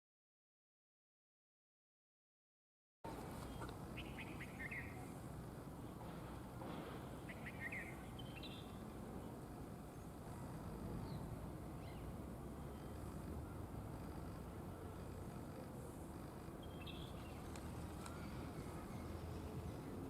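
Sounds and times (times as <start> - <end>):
low outdoor rumble: 3.1 - 20.0
wagtail calling: 3.4 - 5.1, 16.6 - 19.4.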